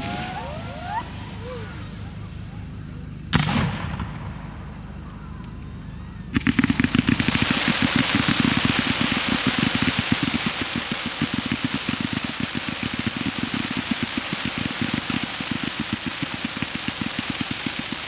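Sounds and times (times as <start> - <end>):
dense loud firework crackling: 0.0 - 18.0
rapid firework bangs: 0.0 - 18.0
firework shell bang: 3.3 - 4.6.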